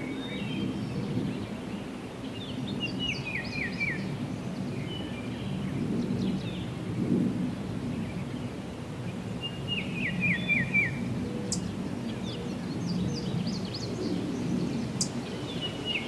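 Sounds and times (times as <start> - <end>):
songbirds singing: 9.4 - 16.0.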